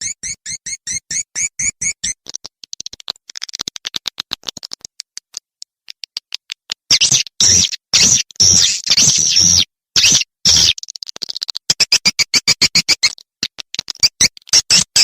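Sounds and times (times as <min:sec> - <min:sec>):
swiftlet chirps and clicks: 0:00.0 - 0:07.4
loud harsh screeches: 0:07.0 - 0:10.8.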